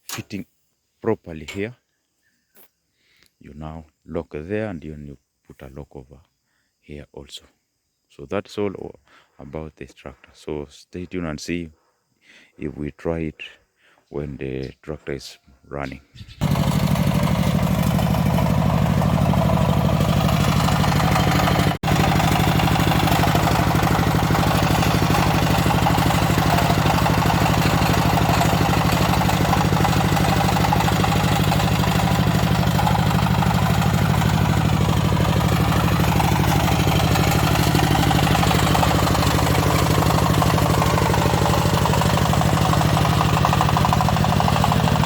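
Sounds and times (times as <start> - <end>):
walking tractor engine running: 16.4 - 45.0.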